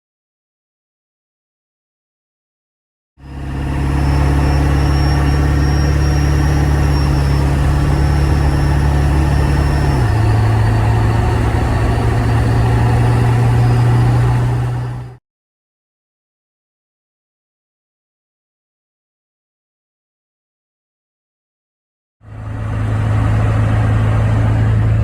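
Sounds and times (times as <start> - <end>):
diesel engine running: 3.2 - 15.2, 22.2 - 25.0
high whine: 3.2 - 15.2.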